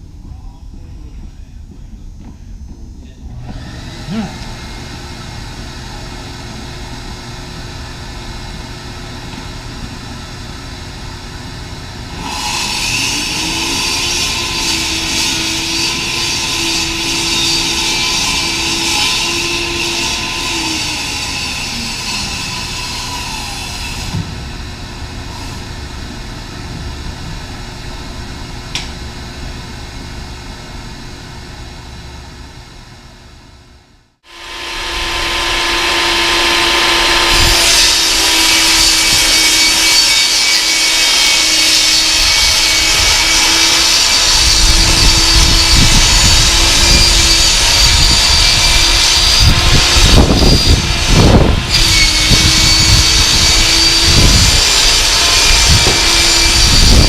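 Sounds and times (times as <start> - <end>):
table saw cutting plywood: 12.1 - 24.4, 34.2 - 57.0.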